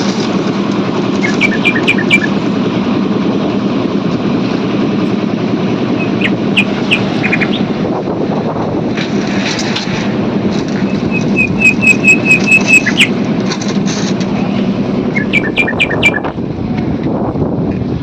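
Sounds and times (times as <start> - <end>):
steady mechanical hum: 0.0 - 18.0
bird chirping: 1.2 - 2.4, 6.0 - 7.7, 10.9 - 13.1, 15.1 - 16.3.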